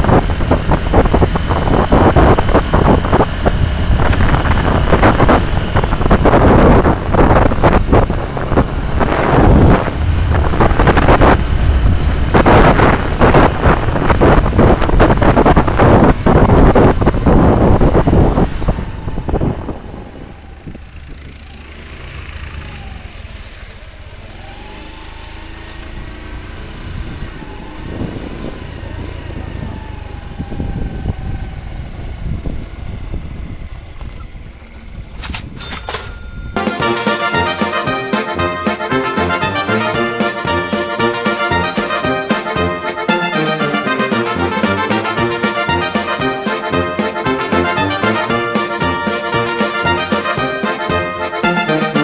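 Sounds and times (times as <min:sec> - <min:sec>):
motorcycle engine running: 0:00.0 - 0:18.0, 0:19.8 - 0:43.1
wind buffeting microphone: 0:00.0 - 0:21.6, 0:25.9 - 0:36.6.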